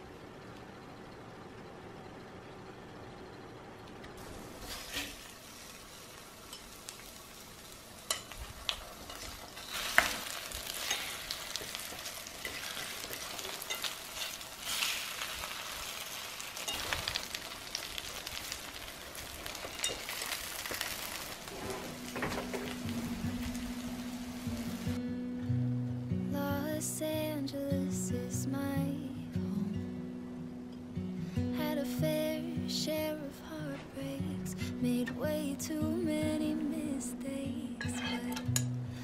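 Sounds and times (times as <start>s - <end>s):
food sizzling in hot oil: 4.2s - 25.0s.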